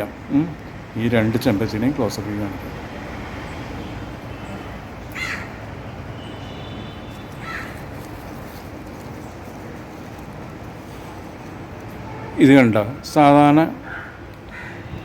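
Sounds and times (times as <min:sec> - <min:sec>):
outdoor background noise: 0:00.0 - 0:15.0
bird harsh calls: 0:03.5 - 0:09.6, 0:13.8 - 0:15.0.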